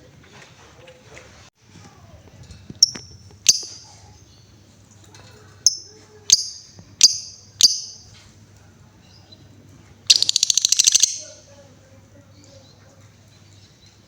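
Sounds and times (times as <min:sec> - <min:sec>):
lovebird chirping and trilling: 0:02.8 - 0:04.6, 0:05.6 - 0:08.2, 0:10.1 - 0:11.4.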